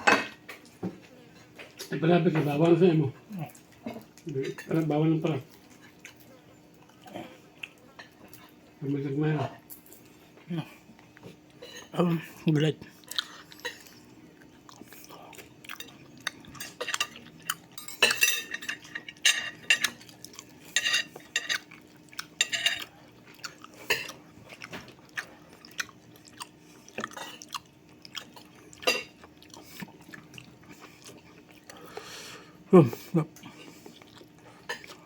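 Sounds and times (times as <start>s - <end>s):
cutlery clinking on dishes: 0.0s - 0.7s, 16.5s - 20.1s, 20.7s - 21.7s, 22.4s - 22.9s, 28.8s - 29.3s
faint steady hum: 0.0s - 35.0s
chewing: 3.2s - 4.4s, 5.4s - 8.8s, 12.8s - 32.3s, 33.3s - 35.0s.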